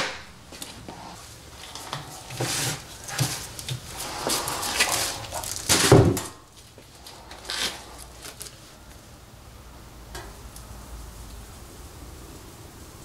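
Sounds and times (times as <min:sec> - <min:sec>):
plastic bag rustling: 0:00.5 - 0:09.0.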